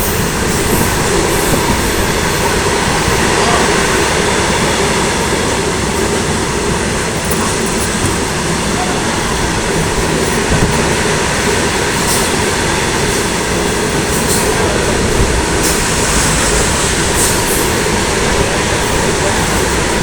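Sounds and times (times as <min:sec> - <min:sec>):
train wagons rumbling on rails: 0:00.0 - 0:20.0.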